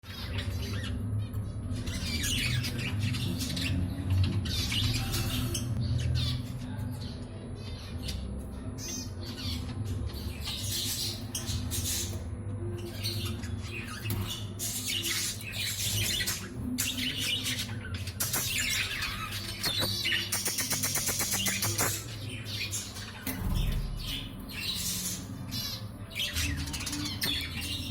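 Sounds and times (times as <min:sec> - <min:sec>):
budgerigars squawking and chirping: 0:12.9 - 0:27.9.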